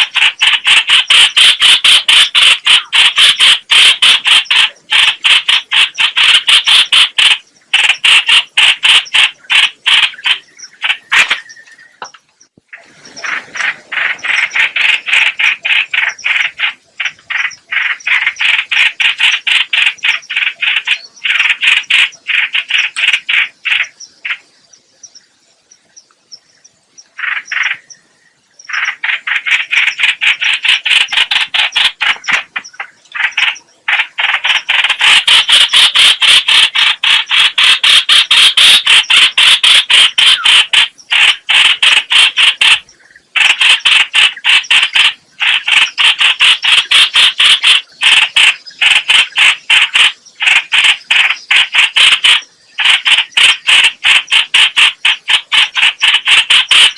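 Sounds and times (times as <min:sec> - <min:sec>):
bird fast chattering: 0:00.0 - 0:24.6, 0:27.0 - 0:56.9.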